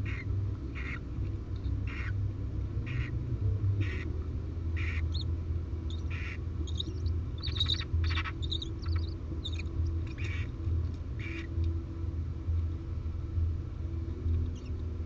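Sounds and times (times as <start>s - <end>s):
steady low hum: 0.0s - 15.0s
owls hissing: 4.8s - 5.1s, 6.0s - 10.5s
thin high chirps: 5.9s - 10.4s.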